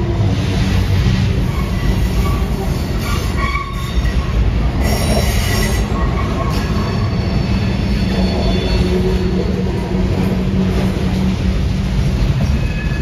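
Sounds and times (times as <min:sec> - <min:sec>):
train wheels rumbling on rails: 0:00.0 - 0:13.0
high wheel squeal: 0:01.4 - 0:09.8, 0:12.4 - 0:13.0.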